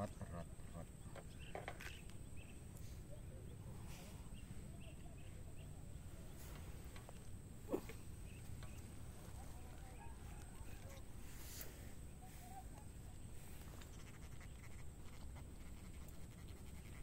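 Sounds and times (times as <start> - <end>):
faint chirps: 0.3 - 13.8.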